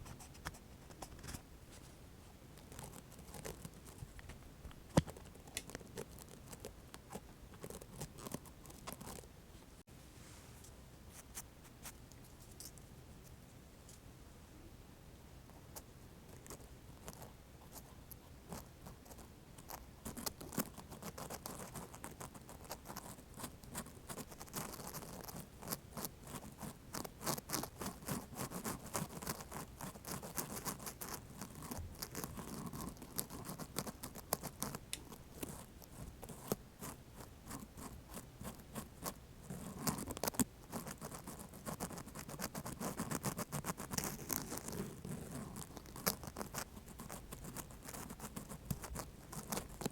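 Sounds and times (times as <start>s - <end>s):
cotton swabs scratching: 19.6s - 49.9s.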